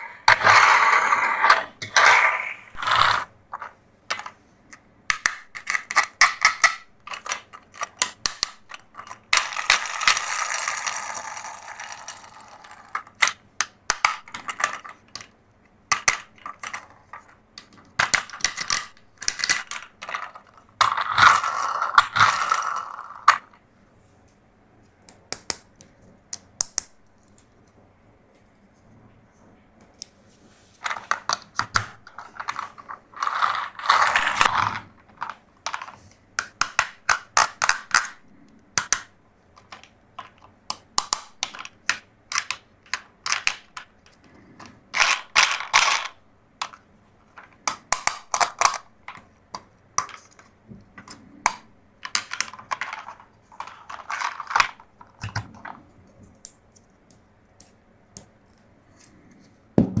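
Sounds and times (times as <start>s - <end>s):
plastic toy parts clicking: 3.6s - 15.3s, 17.6s - 23.5s, 30.9s - 38.2s, 38.8s - 44.2s, 44.9s - 55.6s.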